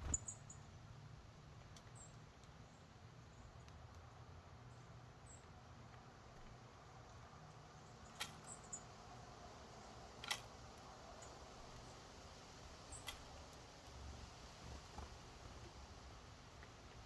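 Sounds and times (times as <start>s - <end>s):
small birds chirping: 0.0s - 0.9s, 1.5s - 9.2s, 11.1s - 12.1s.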